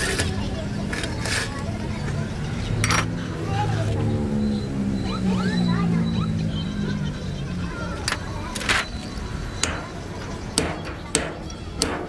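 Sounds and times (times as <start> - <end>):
hammer striking metal: 9.6 - 12.0.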